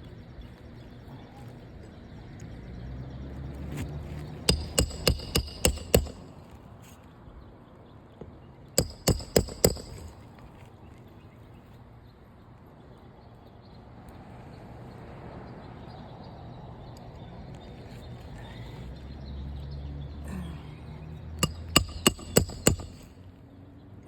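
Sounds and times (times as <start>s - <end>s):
hammer striking nail: 4.5s - 6.5s, 8.8s - 10.2s, 21.4s - 23.1s.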